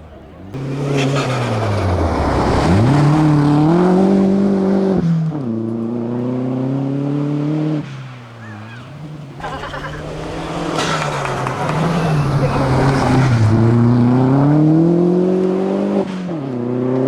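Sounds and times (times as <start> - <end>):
car engine accelerating hard: 0.0 - 17.0
gear change: 8.1 - 14.5.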